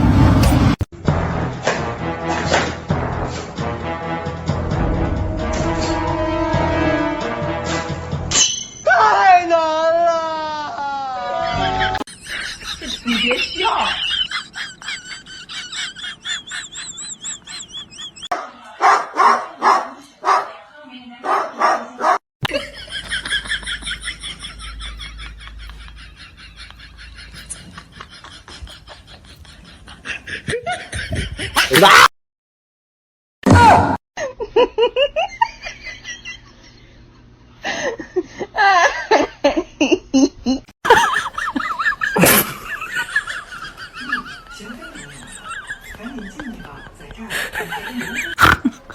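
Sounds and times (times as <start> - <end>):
people laughing: 10.4 - 18.3, 22.4 - 32.1, 34.2 - 48.9
dog barking loudly: 18.3 - 20.6, 21.2 - 22.2.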